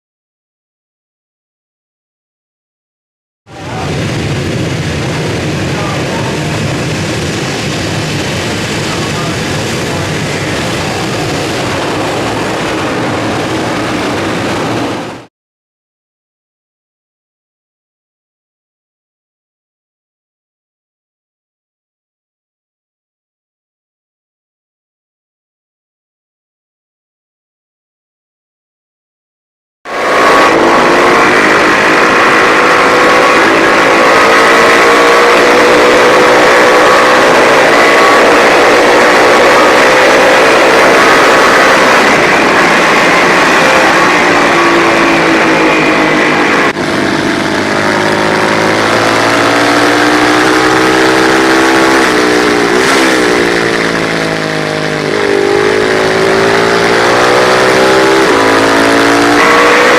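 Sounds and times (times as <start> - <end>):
race motorcycle engine at high revs: 3.6 - 15.3, 29.9 - 59.9.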